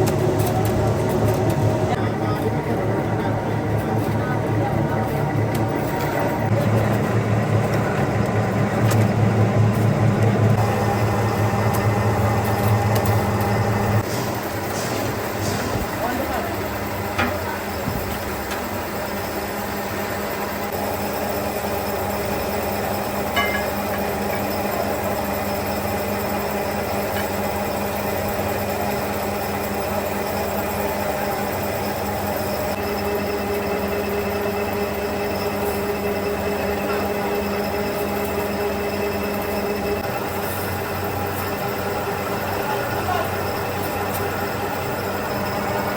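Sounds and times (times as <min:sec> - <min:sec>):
factory machinery humming: 0:00.0 - 0:45.9.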